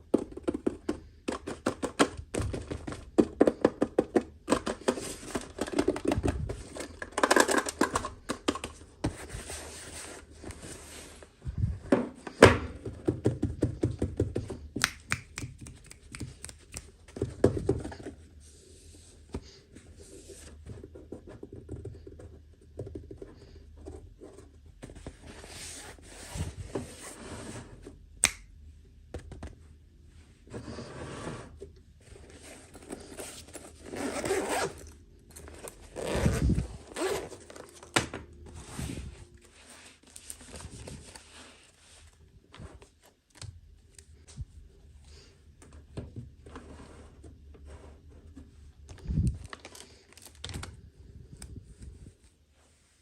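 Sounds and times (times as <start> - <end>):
packaging scraping and clicking: 4.5 - 8.8.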